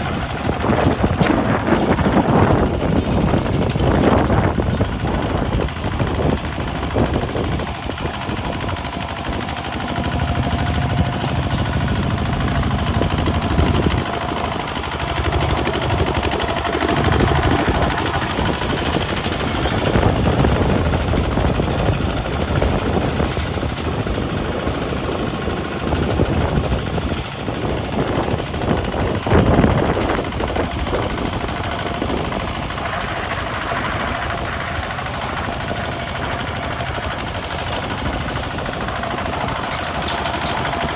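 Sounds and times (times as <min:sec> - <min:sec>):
diesel tractor engine under load: 0:00.0 - 0:40.9.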